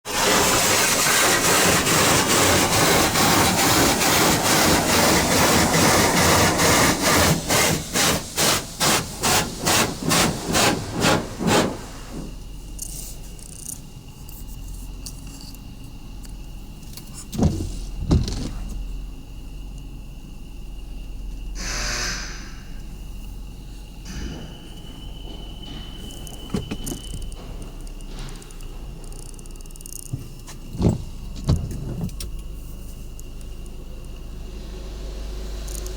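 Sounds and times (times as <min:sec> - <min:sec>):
car wash spraying hiss: 0:00.1 - 0:13.8, 0:21.6 - 0:35.9.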